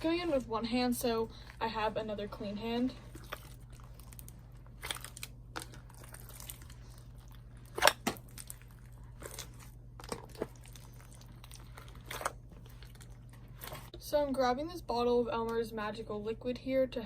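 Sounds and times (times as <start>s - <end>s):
steady low hum: 0.0s - 17.0s
slime squelching and popping: 3.0s - 14.0s.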